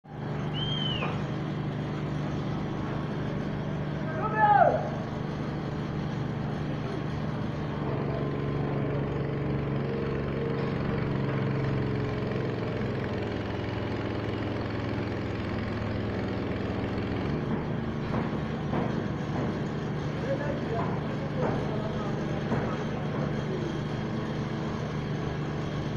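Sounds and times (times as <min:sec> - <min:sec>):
motor humming: 0:00.1 - 0:25.9
short knocks: 0:17.3 - 0:19.9.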